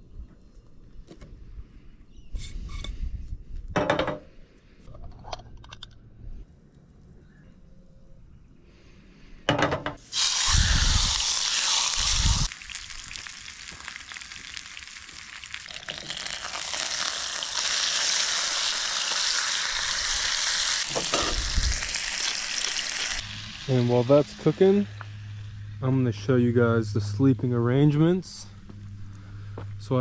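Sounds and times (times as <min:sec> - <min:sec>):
food sizzling in a pan: 0:10.0 - 0:25.5.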